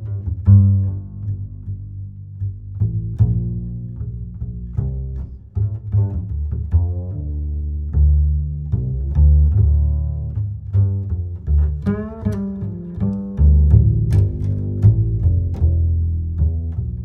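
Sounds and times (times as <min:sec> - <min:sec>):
low plucked string bass line: 0:00.0 - 0:17.0.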